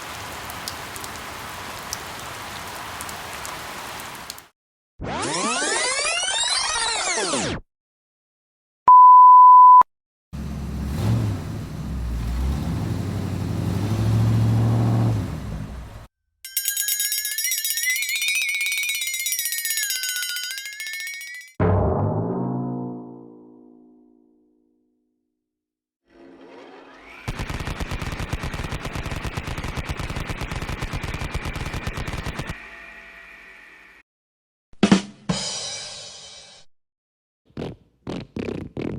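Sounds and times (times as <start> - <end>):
censor beep: 8.9 - 9.9
machine-gun fire: 27.3 - 32.5.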